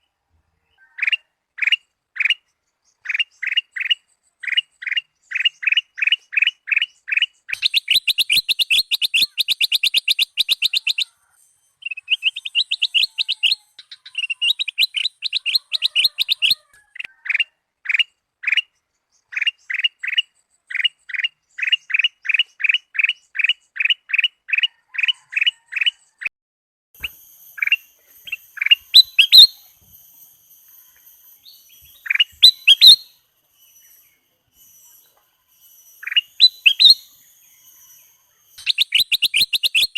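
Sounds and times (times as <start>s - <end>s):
bulbul singing: 1.6s - 24.3s, 27.0s - 39.9s
thin high steady tone: 27.0s - 39.9s.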